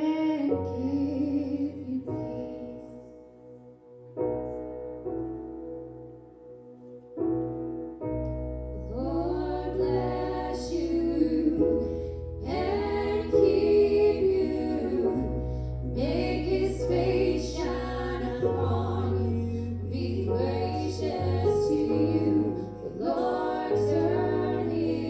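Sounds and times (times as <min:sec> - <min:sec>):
keyboard chords: 0:00.0 - 0:25.0
deep bass: 0:08.2 - 0:25.0.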